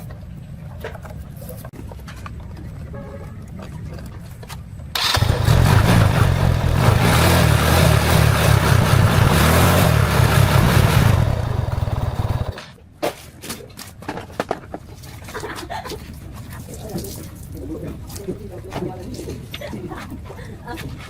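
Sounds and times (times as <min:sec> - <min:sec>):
motorcycle engine running: 0:05.0 - 0:12.6.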